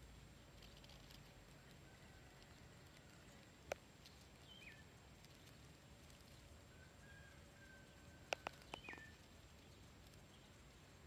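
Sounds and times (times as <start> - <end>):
faint birdsong: 0.0 - 11.0.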